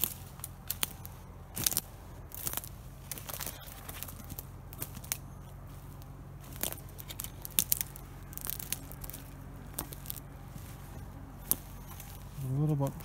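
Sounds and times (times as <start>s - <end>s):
footsteps crunching on forest floor: 0.0s - 13.0s
twigs crackling and snapping: 0.0s - 13.0s.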